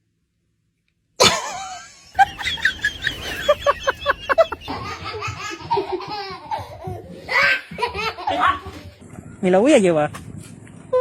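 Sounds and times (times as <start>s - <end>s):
laughter: 1.2s - 8.6s.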